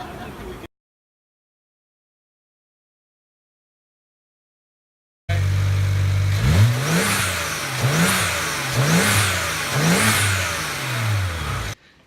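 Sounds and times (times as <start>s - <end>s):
car engine idling and revving: 5.3s - 11.8s.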